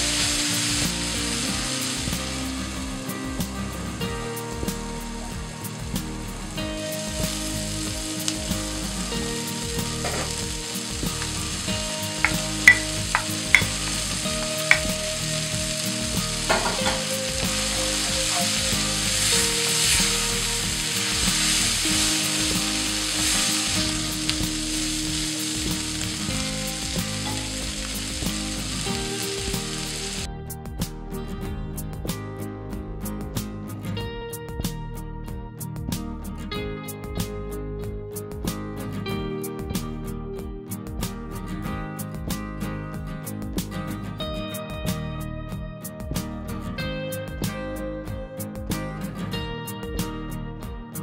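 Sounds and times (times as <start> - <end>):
chicken and vegetables sizzling: 0.0 - 30.3.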